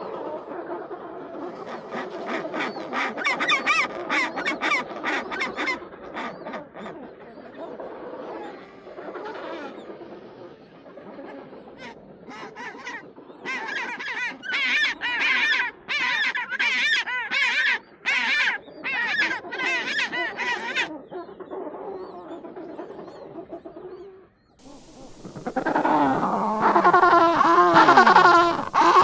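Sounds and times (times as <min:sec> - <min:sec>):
penguin braying calls: 0:24.6 - 0:29.0.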